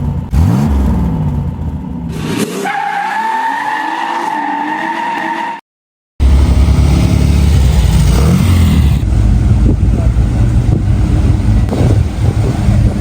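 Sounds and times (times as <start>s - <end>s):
car engine revving: 0.0s - 2.8s, 6.2s - 13.0s.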